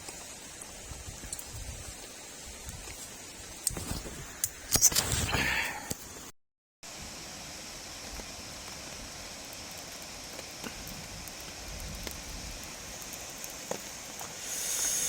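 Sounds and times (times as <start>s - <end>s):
rain drop ticks: 0.0s - 3.0s, 8.0s - 15.0s
steady rain falling: 0.0s - 6.3s, 6.9s - 15.0s.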